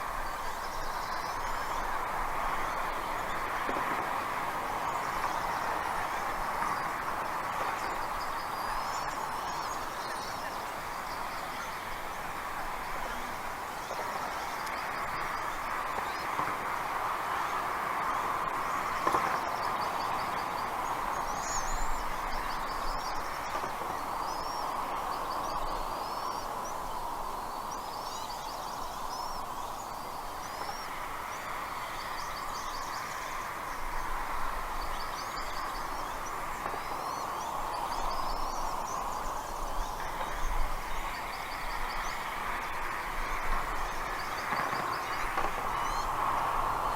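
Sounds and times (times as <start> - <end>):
rushing outdoor noise: 0.0 - 46.9
birds chirping: 18.4 - 46.9.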